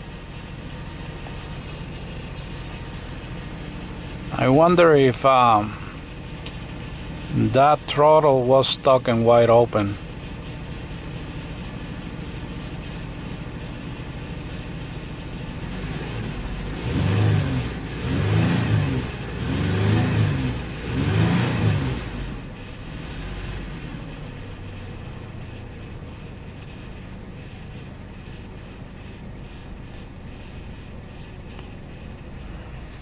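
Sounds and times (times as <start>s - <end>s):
car engine idling rough: 0.0s - 33.0s
engine revving: 15.5s - 33.0s.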